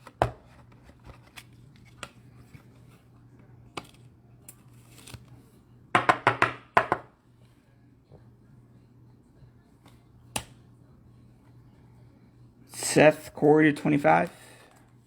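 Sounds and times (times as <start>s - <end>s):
cards rustling: 3.7s - 5.4s
steady low hum: 7.1s - 15.0s.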